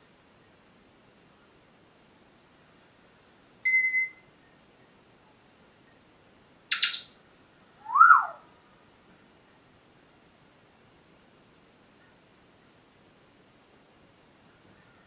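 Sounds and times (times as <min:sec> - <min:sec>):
parrot squawk: 0:06.7 - 0:07.1, 0:07.8 - 0:08.4
parrot whistling: 0:06.7 - 0:07.1, 0:07.8 - 0:08.4.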